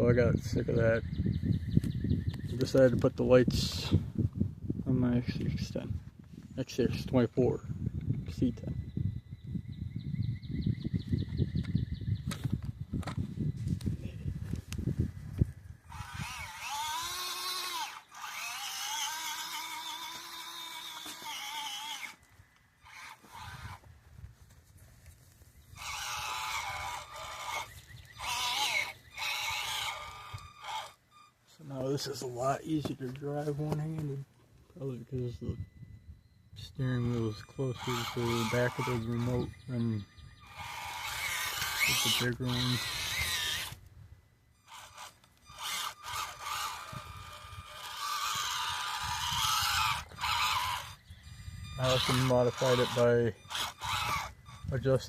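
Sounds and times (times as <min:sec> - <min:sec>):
toy car motor and gears whining: 0:00.3 - 0:04.0, 0:14.5 - 0:23.9, 0:25.3 - 0:34.1, 0:35.2 - 0:55.0.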